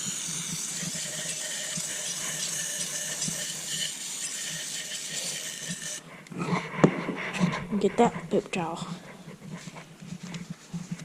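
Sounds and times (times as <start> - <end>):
aerosol can spraying: 0.0 - 6.0.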